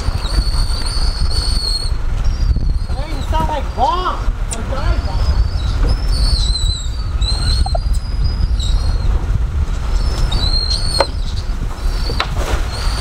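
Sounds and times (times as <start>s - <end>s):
birds whistled calls: 0.0s - 13.0s
steady low rumble: 0.0s - 13.0s.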